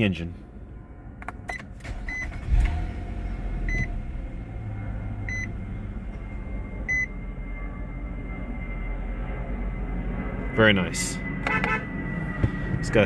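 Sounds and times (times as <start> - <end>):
car engine starting and idling: 1.2 - 7.6.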